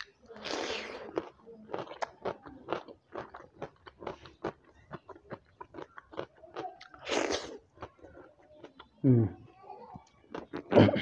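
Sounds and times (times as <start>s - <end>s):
chewing food: 0.0s - 10.9s.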